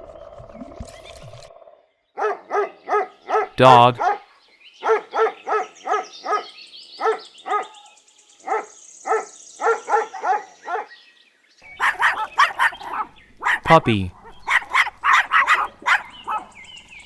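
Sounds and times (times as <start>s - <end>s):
dog barking: 2.2s - 11.0s, 11.8s - 13.6s, 14.5s - 16.5s.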